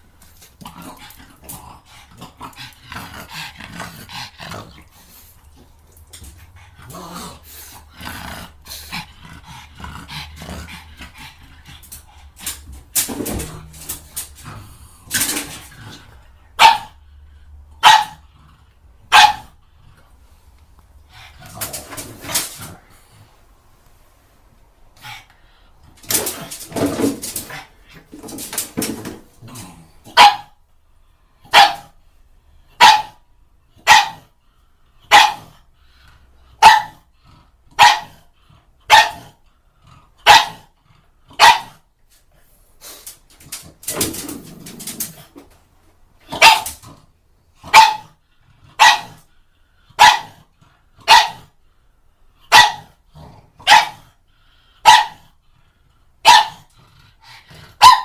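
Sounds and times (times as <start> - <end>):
dog growling: 6.5 - 11.8
dog barking: 16.6 - 17.0, 17.8 - 18.2, 19.1 - 19.5, 30.1 - 30.6, 31.5 - 31.9, 32.8 - 33.2, 33.8 - 34.3, 35.1 - 35.5, 36.6 - 37.0, 37.8 - 38.2, 38.9 - 39.3, 40.2 - 40.7, 41.4 - 41.8, 46.3 - 46.7, 47.7 - 48.2, 48.8 - 49.2, 50.0 - 50.4, 51.0 - 51.5, 52.5 - 52.9, 53.6 - 54.0, 54.8 - 55.2, 56.2 - 56.7, 57.8 - 58.0.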